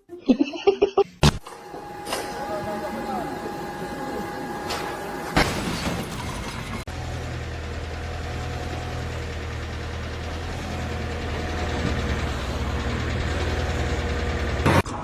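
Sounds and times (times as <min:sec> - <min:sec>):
engine running with low rumble: 0:01.4 - 0:15.0
loud bang: 0:05.4 - 0:06.9.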